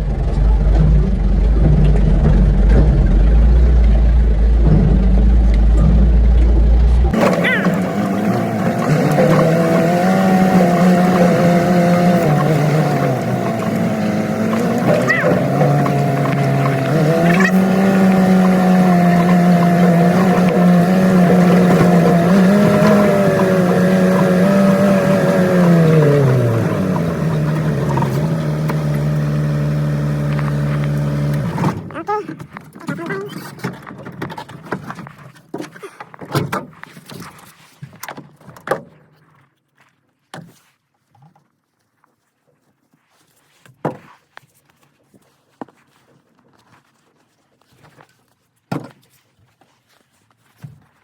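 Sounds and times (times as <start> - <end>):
truck engine running from inside cab: 0.0 - 31.9.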